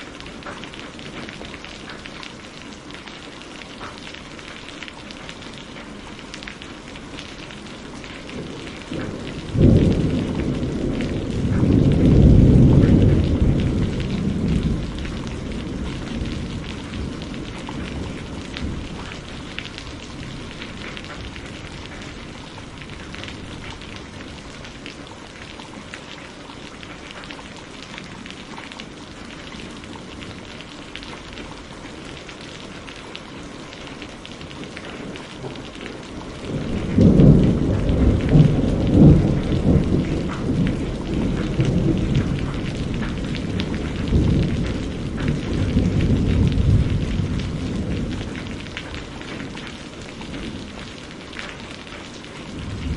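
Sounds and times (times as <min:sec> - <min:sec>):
steady rain: 0:00.0 - 0:52.9
thunder rumbling: 0:07.3 - 0:26.0, 0:33.9 - 0:52.9.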